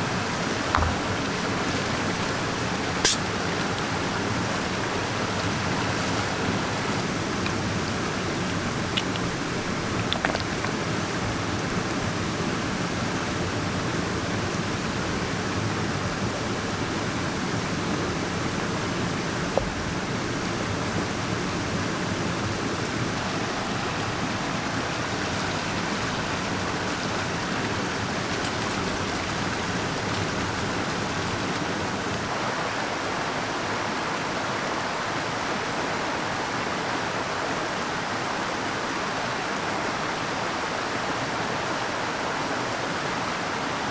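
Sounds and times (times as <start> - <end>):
mountain stream rushing: 0.0 - 43.9
sharp click: 3.0 - 3.2.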